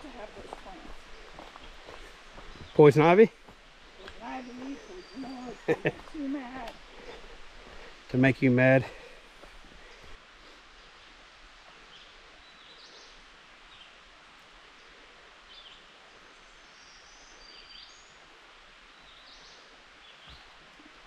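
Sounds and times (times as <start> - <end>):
songbirds chirping and whistling: 0.0 - 8.0
creek running: 0.0 - 21.0.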